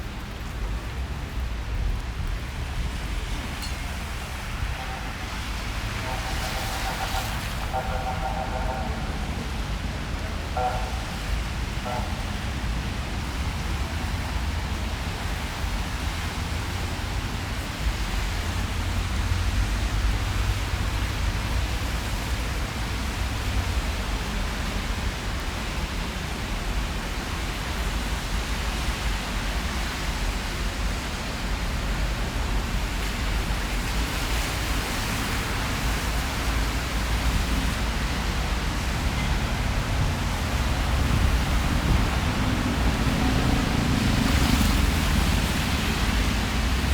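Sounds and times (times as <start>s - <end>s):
rain hissing: 0.0s - 25.6s
traffic rumble: 0.0s - 46.9s.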